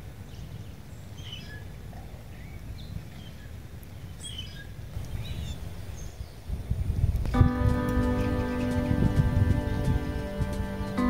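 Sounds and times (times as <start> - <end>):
small songbirds chirping: 0.0 - 11.0
low outdoor rumble: 7.4 - 11.0.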